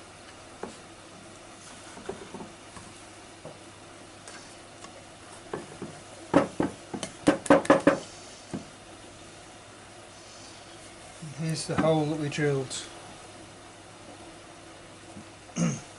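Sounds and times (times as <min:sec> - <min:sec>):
sharp knocks: 0:05.6 - 0:08.0.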